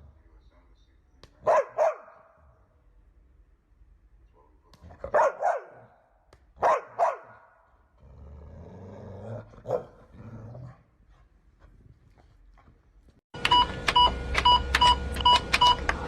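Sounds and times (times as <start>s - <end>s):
dog barking: 1.4s - 2.4s, 4.3s - 7.7s, 9.6s - 10.0s.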